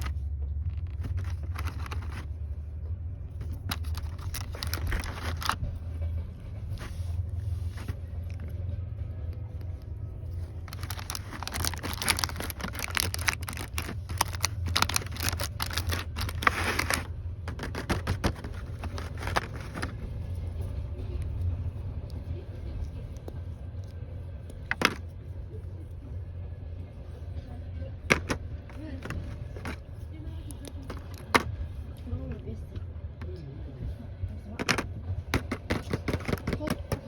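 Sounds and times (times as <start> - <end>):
rapid crackling of handled object: 0.0 - 2.4, 3.4 - 8.7, 9.7 - 25.5, 35.2 - 37.0
train rumbling: 0.0 - 37.0.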